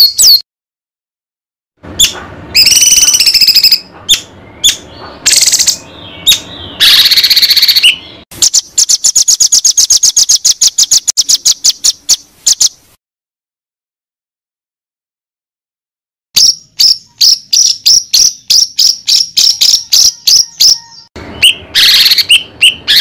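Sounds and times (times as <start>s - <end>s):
fast repeated sharp bird notes: 0.0s - 0.4s, 1.9s - 12.9s, 16.4s - 23.0s
songbird singing: 0.0s - 0.4s, 1.9s - 12.9s, 16.4s - 23.0s.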